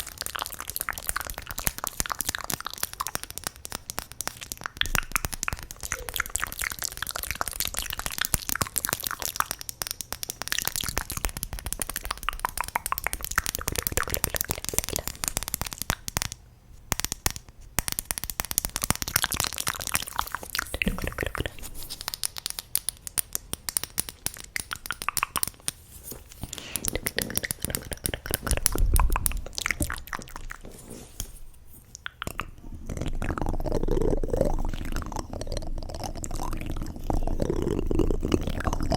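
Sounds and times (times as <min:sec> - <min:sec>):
wet mouth clicks and smacks: 0:00.0 - 0:38.9.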